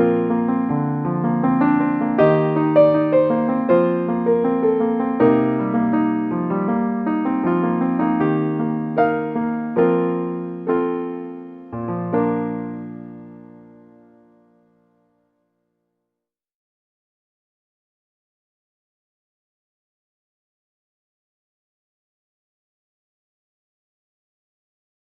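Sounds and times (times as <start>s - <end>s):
gentle solo piano: 0.0s - 15.0s.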